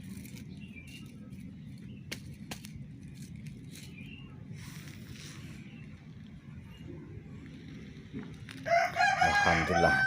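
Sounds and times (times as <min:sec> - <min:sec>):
low background rumble: 0:00.0 - 0:09.8.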